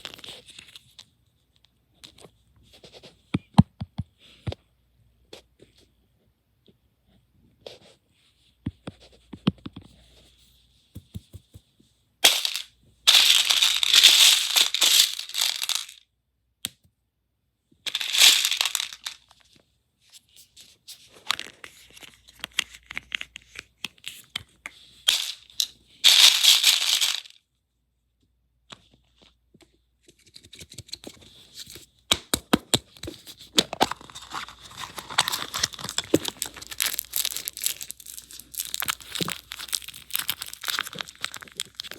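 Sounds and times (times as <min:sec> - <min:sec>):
wrappers crinkling and tearing: 0:12.3 - 0:16.0, 0:33.8 - 0:41.9.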